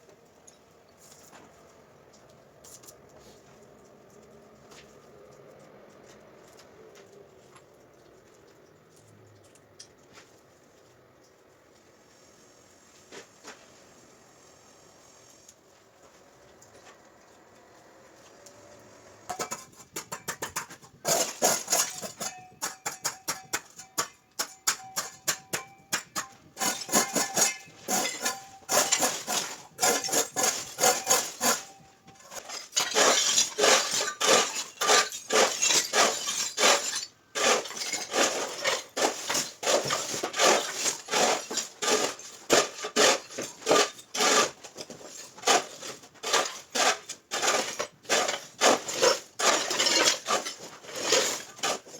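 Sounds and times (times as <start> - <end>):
hard objects clicking and clinking: 19.3 - 42.6.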